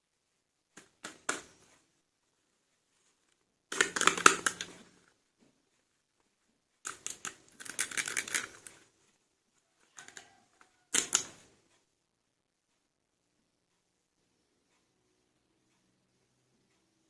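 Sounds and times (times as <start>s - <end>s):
plastic toy figures clicking: 3.7s - 4.8s, 6.8s - 8.8s, 10.9s - 11.5s.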